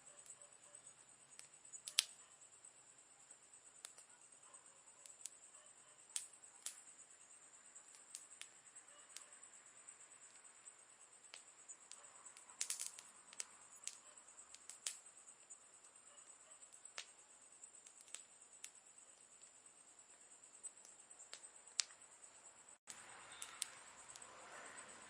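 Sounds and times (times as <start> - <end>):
faint fire hiss: 0.0 - 25.0
burning wood popping and snapping: 1.3 - 2.2, 11.3 - 15.0, 16.6 - 17.2, 17.8 - 22.0, 22.9 - 24.2.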